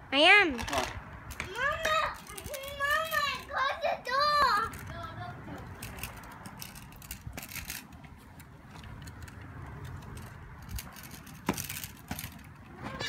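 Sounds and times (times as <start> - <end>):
scooter rattling: 0.5 - 13.0.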